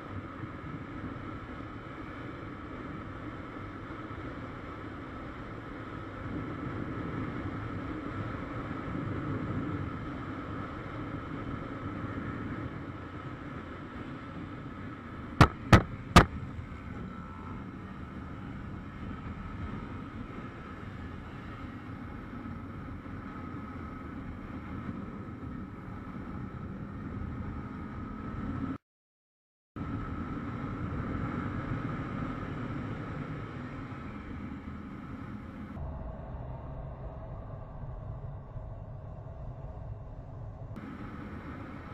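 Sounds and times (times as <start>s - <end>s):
sharp loud cracks: 15.4s - 16.4s
motorcycle engine: 15.4s - 21.3s
wind rush: 29.8s - 41.9s.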